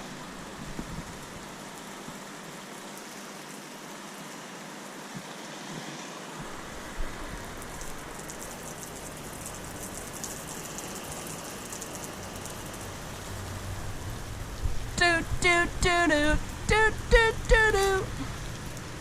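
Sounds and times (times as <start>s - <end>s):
lawn sprinkler spraying water: 0.1s - 14.8s.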